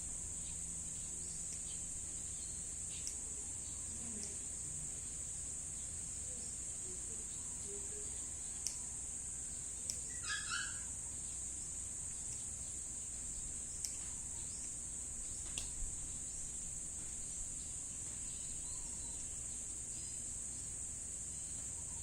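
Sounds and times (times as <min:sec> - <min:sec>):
insect chorus shrilling: 0:05.8 - 0:16.6, 0:17.3 - 0:22.0
sharp clicks: 0:15.5 - 0:15.8.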